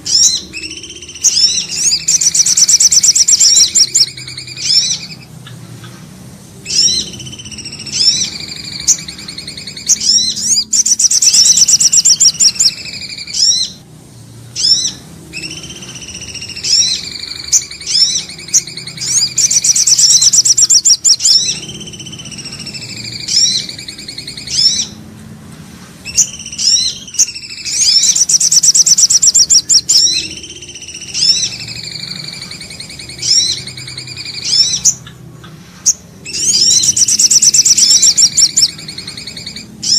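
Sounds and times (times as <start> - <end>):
loud fast high trill: 0.0 - 5.3, 6.7 - 13.8, 14.6 - 25.0, 36.3 - 39.9
whistled bird notes: 0.0 - 5.3, 6.6 - 13.8, 14.5 - 25.0, 26.0 - 35.2, 35.8 - 39.9.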